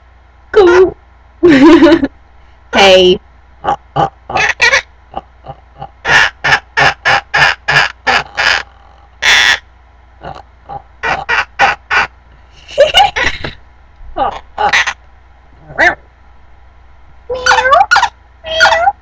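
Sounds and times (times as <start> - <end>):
parrot harsh squawk: 4.3 - 4.9, 6.0 - 9.6, 11.0 - 12.1, 14.3 - 15.0, 17.3 - 19.0
parrot noisy chatter: 4.3 - 4.9, 6.0 - 9.7, 11.0 - 12.2, 14.3 - 15.0, 17.3 - 19.0
parrot chirping: 17.3 - 19.0.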